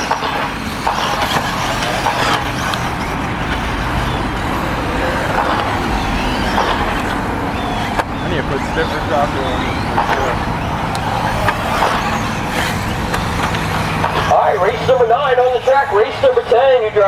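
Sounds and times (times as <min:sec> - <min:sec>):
electric motor whines: 0:00.0 - 0:16.8
tyre and running noise: 0:00.0 - 0:17.0.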